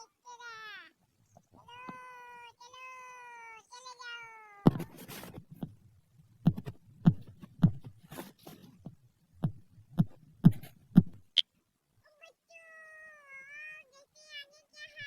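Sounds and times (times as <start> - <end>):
short low thuds: 6.4 - 11.4.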